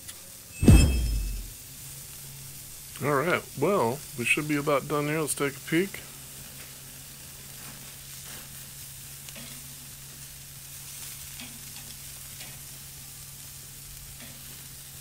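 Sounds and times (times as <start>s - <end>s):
sausages sizzling on a grill: 0.0s - 0.6s, 1.6s - 15.0s
low hum: 0.6s - 1.6s.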